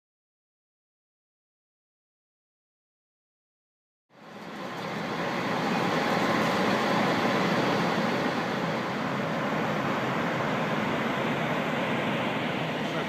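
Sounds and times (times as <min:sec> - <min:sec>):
airflow and engine noise: 0:04.1 - 0:13.0.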